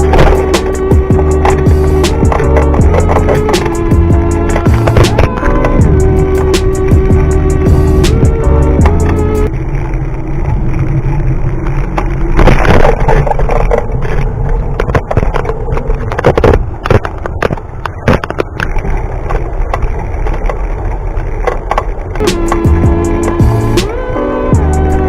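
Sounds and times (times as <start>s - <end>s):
rattles and knocks: 0.0s - 9.3s
bike riding on road: 0.0s - 25.0s.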